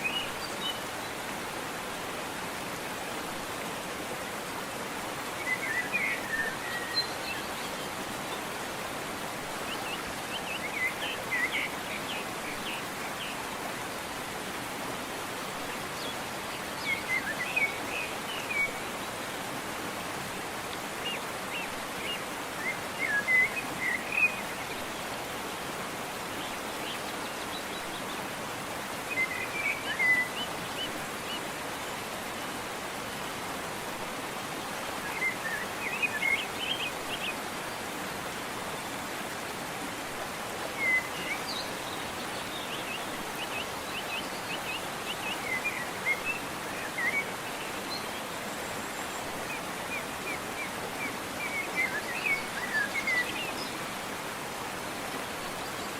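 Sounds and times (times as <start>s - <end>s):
waterfall rushing: 0.0s - 55.9s
songbird chirping: 40.6s - 54.3s.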